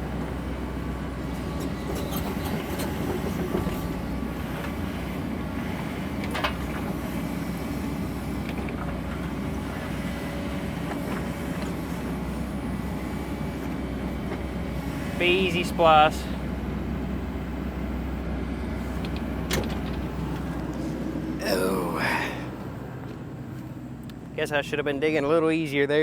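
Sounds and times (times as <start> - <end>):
excavator diesel engine: 0.0 - 25.4.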